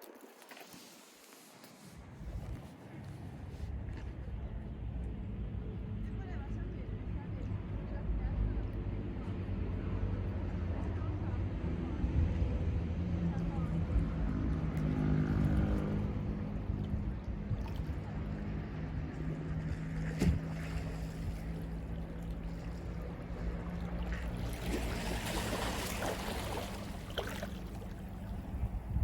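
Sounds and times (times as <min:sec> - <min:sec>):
boat engine humming: 0:00.4 - 0:29.0
wave washing in: 0:20.5 - 0:28.6.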